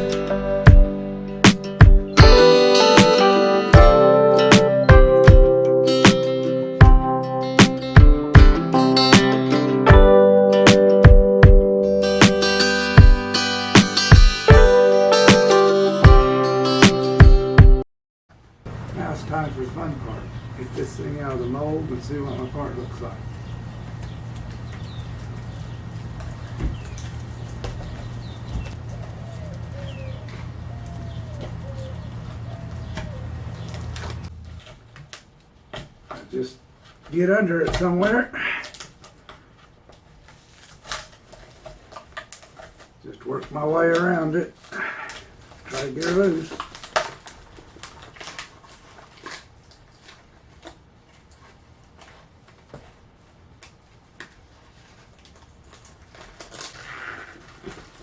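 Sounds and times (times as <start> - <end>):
steady low hum: 18.6 - 34.8
birds calling: 18.7 - 34.5.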